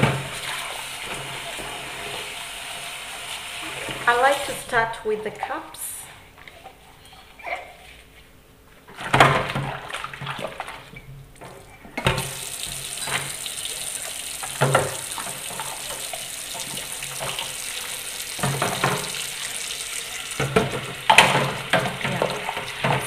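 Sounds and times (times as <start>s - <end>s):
water sloshing and splashing: 8.9s - 23.0s.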